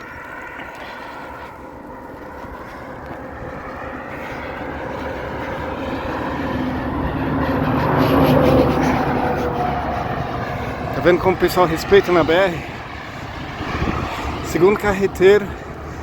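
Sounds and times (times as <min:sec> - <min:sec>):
truck passing on highway: 0:00.0 - 0:16.0.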